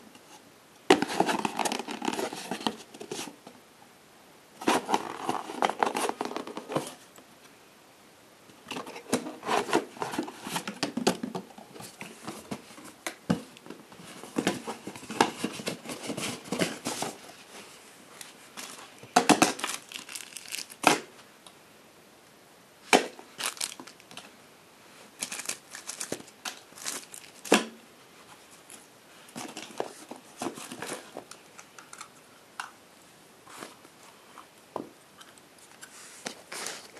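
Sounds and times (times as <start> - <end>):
packaging crinkling and tearing: 18.6 - 21.0, 23.3 - 24.2, 25.2 - 27.6.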